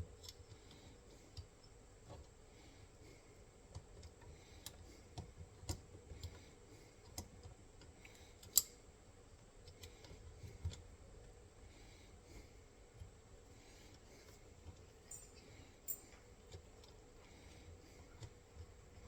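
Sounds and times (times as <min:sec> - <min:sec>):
metal parts clicking and tapping: 0:14.6 - 0:17.0.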